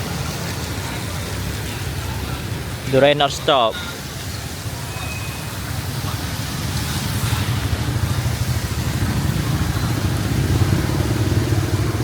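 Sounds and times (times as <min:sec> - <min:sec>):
rain hiss: 0:00.0 - 0:12.0
motorbike engine running: 0:07.7 - 0:12.0.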